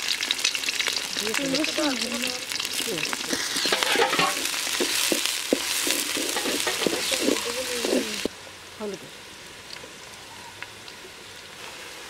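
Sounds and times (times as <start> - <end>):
onions sizzling in hot oil: 0.0 - 12.0
wooden spatula scraping metal pot: 1.6 - 8.3.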